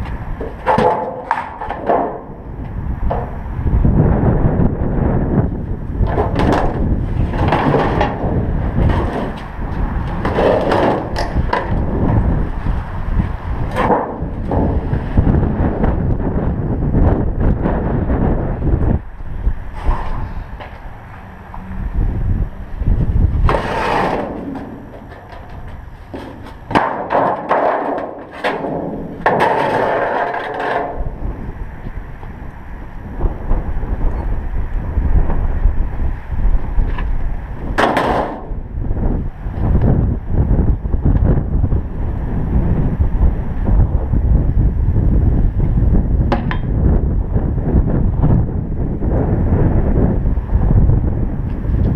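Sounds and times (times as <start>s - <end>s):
wind buffeting microphone: 0.0s - 51.9s
sharp knocks and clatters: 0.4s - 2.3s, 6.0s - 9.5s, 13.7s - 14.9s, 23.4s - 31.0s, 37.8s - 38.5s
sharp knocks and clicks: 0.4s - 2.3s
scraping and rustling: 23.4s - 31.2s.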